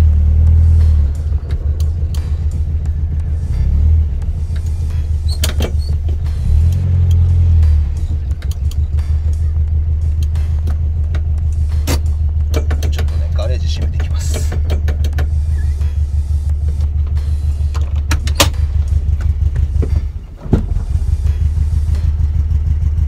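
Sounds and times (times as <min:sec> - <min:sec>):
car engine idling lumpily: 0:00.0 - 0:23.0
sharp clicks: 0:08.2 - 0:09.0.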